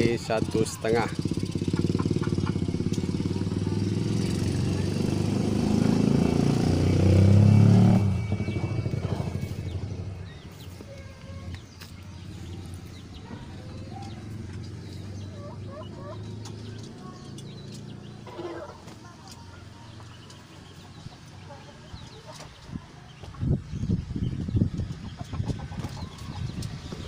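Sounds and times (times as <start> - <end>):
small engine running: 0.0 - 10.2
faint chirping calls: 7.0 - 27.0.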